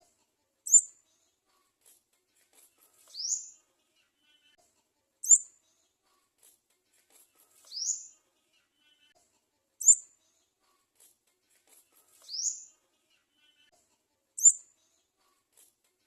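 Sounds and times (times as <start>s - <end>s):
bird nestling short chirp: 5.2s - 5.4s.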